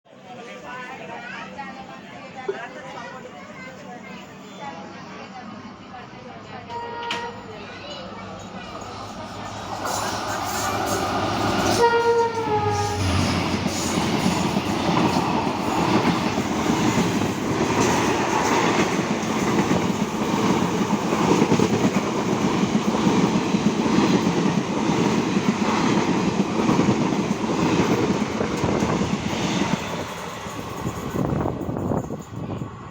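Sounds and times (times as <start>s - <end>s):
locomotive horn blast: 6.7s - 7.5s, 11.6s - 13.4s
train wheels on rails rattling: 7.1s - 32.9s.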